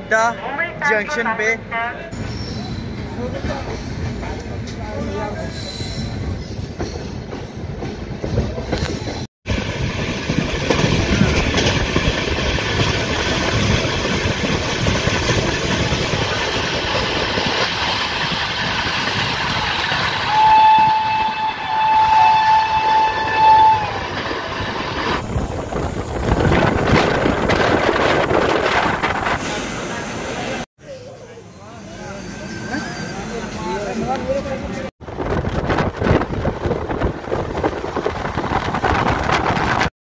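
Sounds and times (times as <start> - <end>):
train wheels rumbling on rails: 2.2 - 30.6, 31.6 - 39.9
train horn blasts: 20.2 - 24.1.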